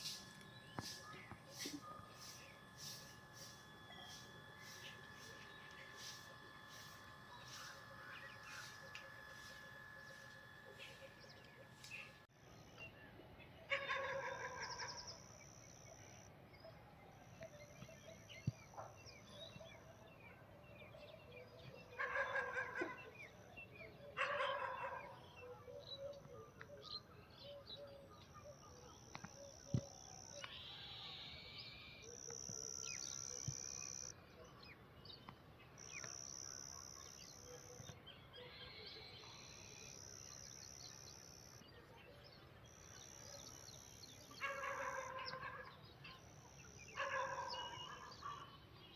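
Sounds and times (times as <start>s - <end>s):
loud bird calls: 44.3s - 45.8s, 46.9s - 48.6s.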